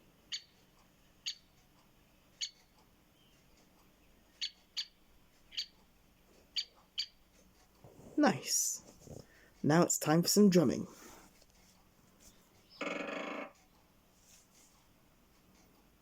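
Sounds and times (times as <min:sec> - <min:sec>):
woodpecker sharp call: 0:12.7 - 0:13.5.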